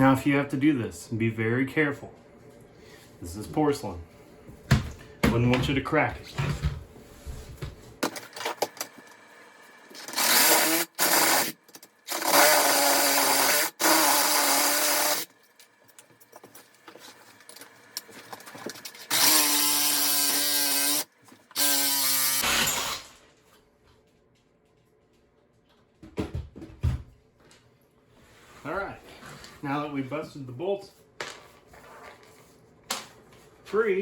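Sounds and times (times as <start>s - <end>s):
power tool cutting metal bolts: 9.9s - 15.3s, 18.9s - 23.2s.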